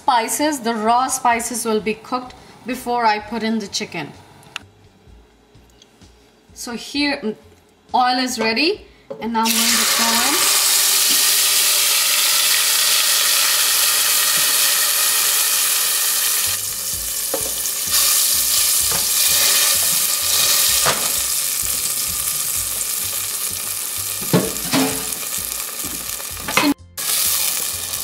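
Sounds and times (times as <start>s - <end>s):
masala sizzling in hot oil: 9.4s - 28.0s.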